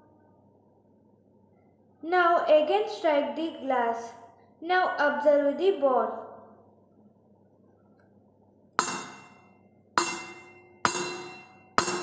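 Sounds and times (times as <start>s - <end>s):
spoon striking metal glass: 8.8s - 12.0s.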